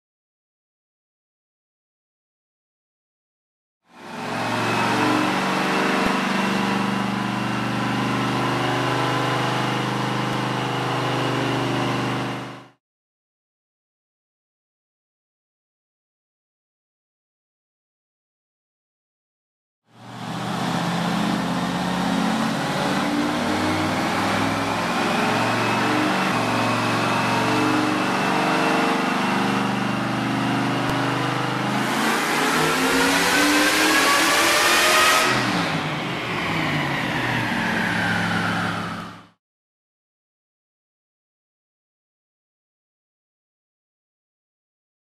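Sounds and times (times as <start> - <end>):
v eight engine on dyno: 3.9 - 12.8, 19.9 - 39.4.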